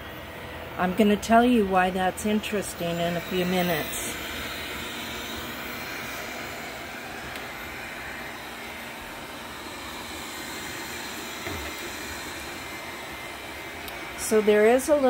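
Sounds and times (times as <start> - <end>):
vacuum brushes turning: 0.6 - 15.0
robot vacuum suction hum: 0.7 - 15.0.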